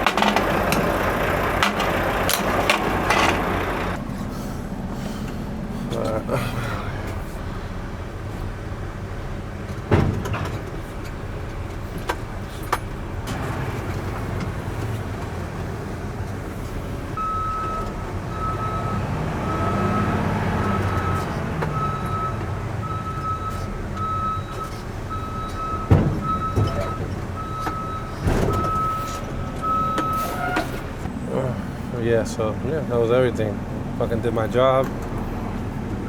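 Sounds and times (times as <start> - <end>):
truck diesel engine idling: 0.0 - 36.0
reversing alarm beeping: 17.2 - 30.8.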